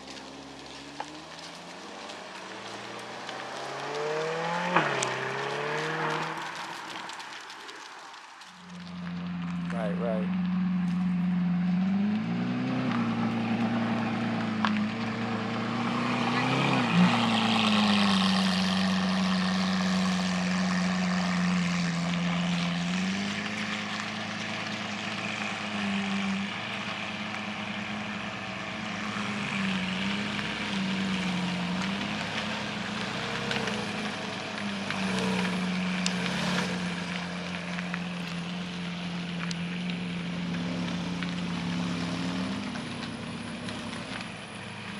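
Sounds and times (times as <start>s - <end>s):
car engines idling and revving: 0.0s - 44.9s.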